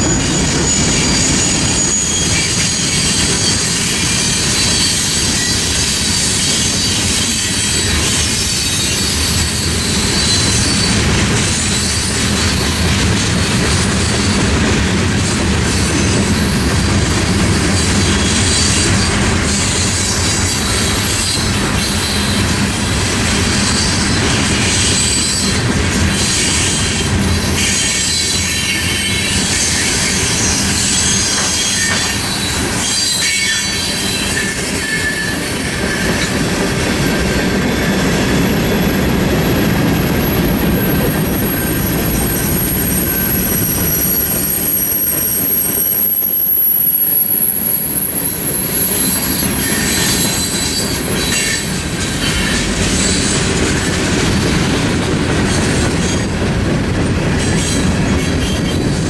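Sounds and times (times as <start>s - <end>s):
high-pitched wheel squeal: 0.0s - 12.9s, 23.6s - 54.6s
freight train rumbling past: 0.0s - 59.0s.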